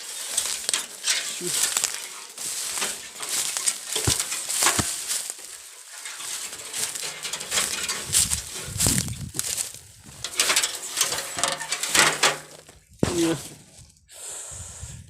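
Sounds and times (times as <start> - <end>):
crackling handling noise: 0.0 - 14.0
low bumps: 6.2 - 13.8.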